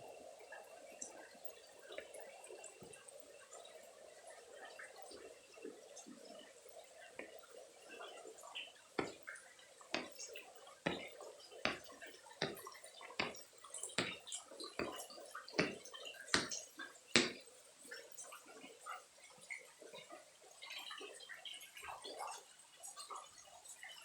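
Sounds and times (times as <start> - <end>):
light patter of rain: 0.0 - 24.0
rainwater dripping: 5.7 - 18.3.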